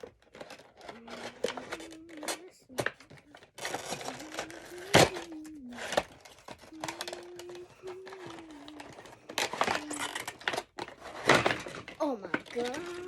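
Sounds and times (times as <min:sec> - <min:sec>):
plastic packaging crackling: 0:03.4 - 0:13.0
person humming a low tune: 0:06.7 - 0:10.1.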